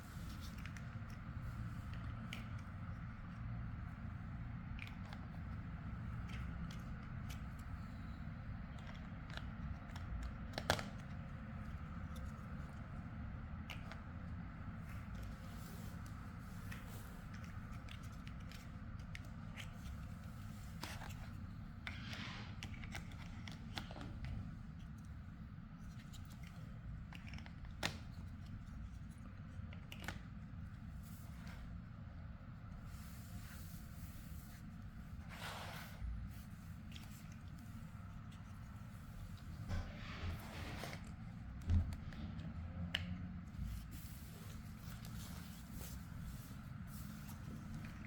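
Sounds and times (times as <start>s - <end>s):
steady low hum: 0.0s - 10.5s
low steady hum: 0.0s - 48.0s.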